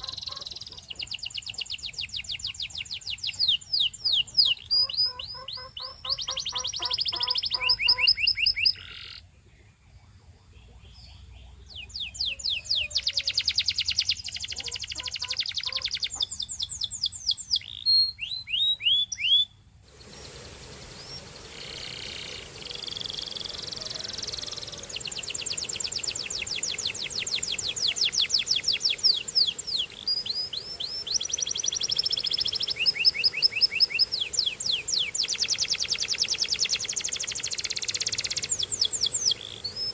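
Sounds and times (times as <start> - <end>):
canary singing trills: 0.0 - 39.9
steady hiss: 19.6 - 39.9.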